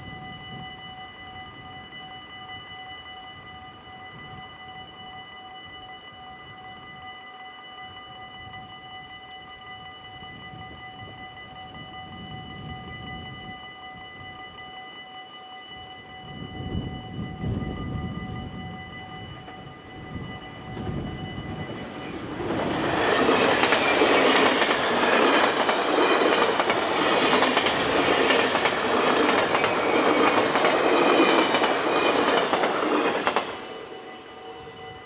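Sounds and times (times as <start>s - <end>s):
crossing warning bell ringing: 0.0s - 35.0s
train wheels clattering on rails: 20.6s - 34.0s.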